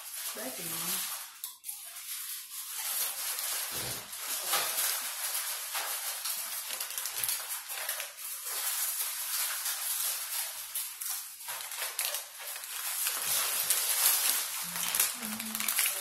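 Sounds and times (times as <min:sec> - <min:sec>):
chewing and mouth noises: 0:14.5 - 0:16.0.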